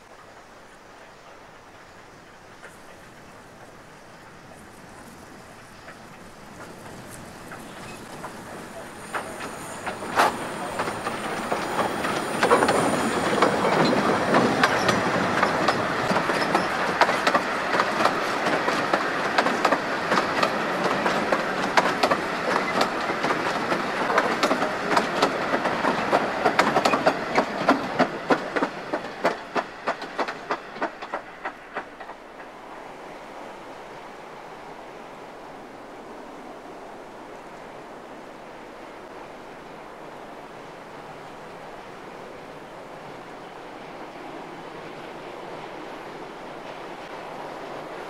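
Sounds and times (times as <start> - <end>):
steam train passing: 0.0 - 48.0
wheels clicking over rail joints: 1.0 - 32.6.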